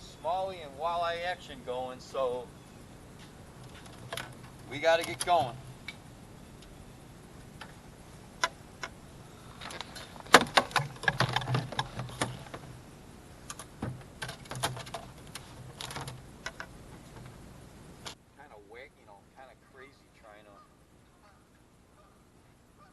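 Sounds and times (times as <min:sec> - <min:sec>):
fishing gear clattering in boat: 0:09.6 - 0:12.6, 0:13.5 - 0:17.3.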